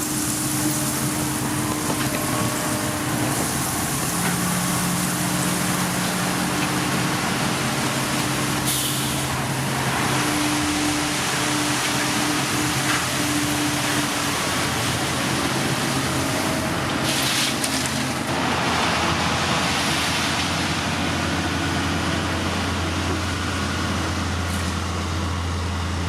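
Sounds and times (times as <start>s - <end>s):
diesel machinery engine drone: 0.0s - 26.0s
brief hiss: 8.7s - 9.3s.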